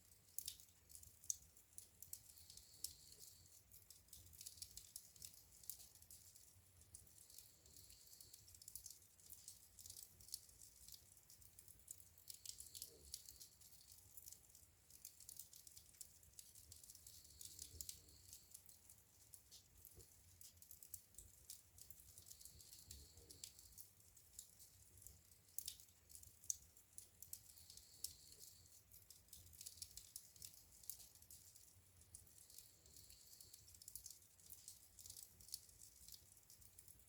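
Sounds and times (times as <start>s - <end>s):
low steady fire rumble: 0.0s - 37.0s
wood fire crackling: 0.0s - 37.0s.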